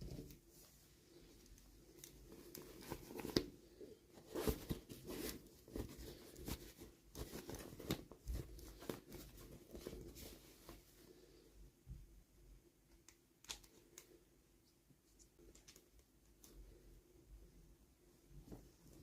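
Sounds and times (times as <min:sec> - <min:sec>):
small clicks and taps: 0:15.2 - 0:16.6.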